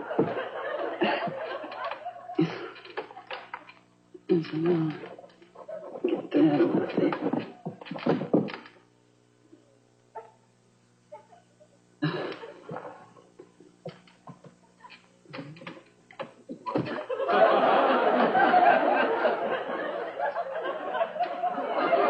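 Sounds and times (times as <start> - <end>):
audience laughter: 0.0 - 3.6, 16.5 - 22.0.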